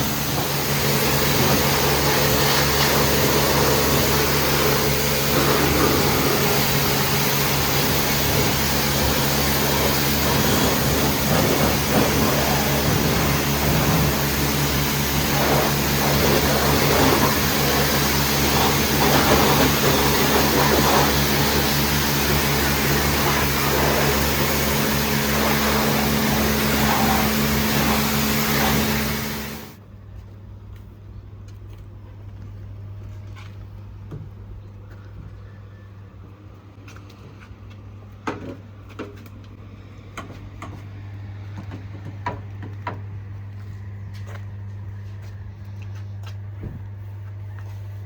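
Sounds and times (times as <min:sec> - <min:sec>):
pressure washer motor hum: 0:00.0 - 0:29.8
water spray hissing: 0:00.0 - 0:29.8.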